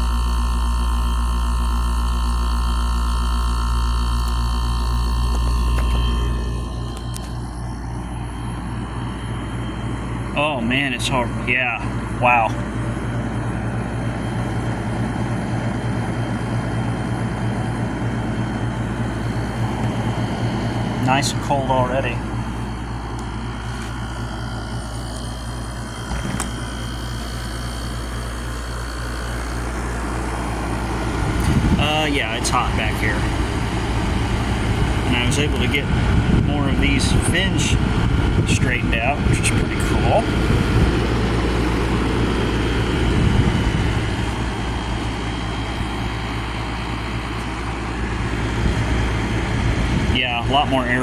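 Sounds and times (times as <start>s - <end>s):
air conditioner humming: 0.0s - 51.0s
air conditioner click: 4.2s - 8.2s, 22.3s - 36.0s.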